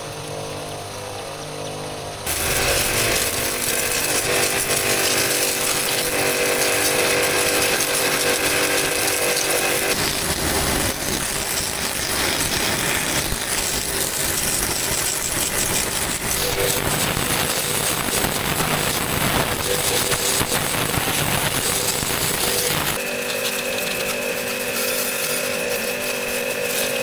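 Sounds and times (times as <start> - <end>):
power tool grinding: 0.0 - 27.0
humming tone: 16.0 - 27.0.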